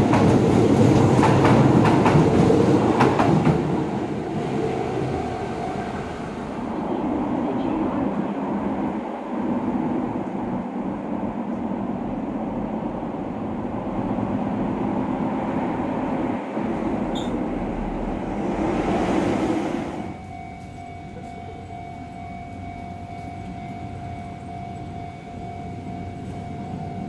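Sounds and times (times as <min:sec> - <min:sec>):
metro car wheel rumble: 0:00.0 - 0:25.0.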